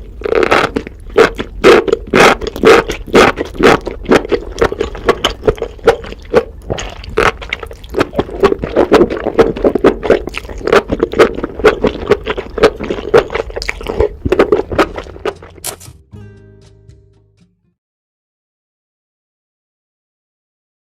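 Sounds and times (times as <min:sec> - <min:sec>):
wet chewing and slurping: 0:00.0 - 0:15.8.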